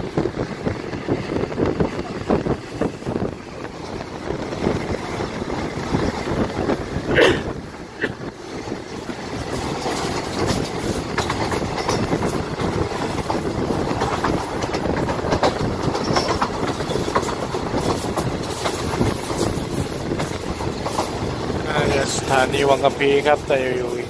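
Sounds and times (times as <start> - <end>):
train wheels rumbling on rail: 0.0 - 24.0
wheels clicking over rail joints: 8.1 - 24.0.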